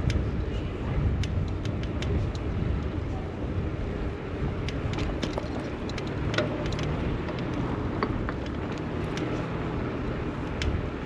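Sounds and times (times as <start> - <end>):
light clicks and ticks: 0.0 - 0.2, 1.1 - 3.0, 4.6 - 9.8, 10.4 - 10.9
road traffic rumble: 0.0 - 11.0.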